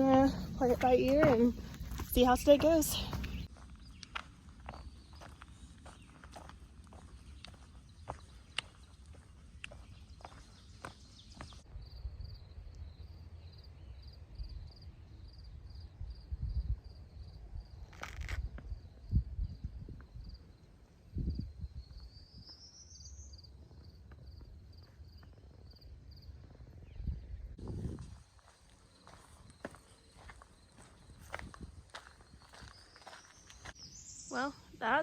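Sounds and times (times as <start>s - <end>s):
footsteps on trail: 0.0s - 11.7s, 17.9s - 18.7s, 23.6s - 25.8s, 27.6s - 35.0s
insect chirping: 11.7s - 26.7s, 27.7s - 34.8s.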